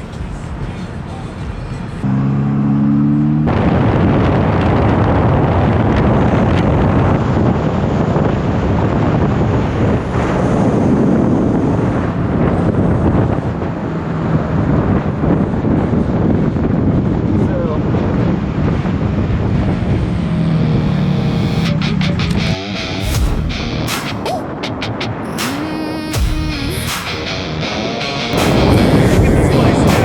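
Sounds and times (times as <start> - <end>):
moving vehicle noise: 0.0 - 30.0
wind on microphone: 3.4 - 22.6, 28.3 - 30.0
steady pitched hum: 19.2 - 30.0.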